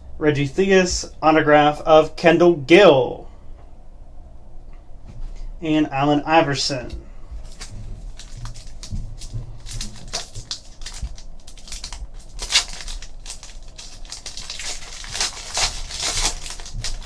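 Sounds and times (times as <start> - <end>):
trading cards clicking and rustling: 6.7 - 17.0.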